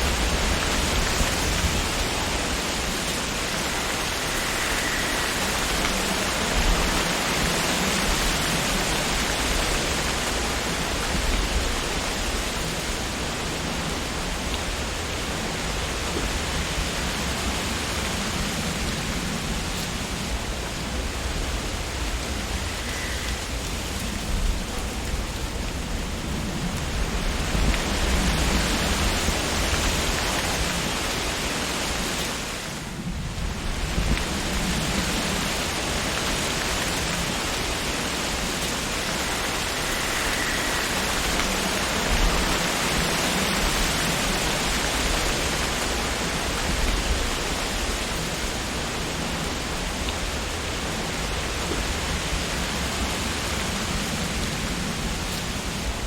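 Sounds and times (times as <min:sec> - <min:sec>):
wind rustling tree leaves: 0:00.0 - 0:56.0.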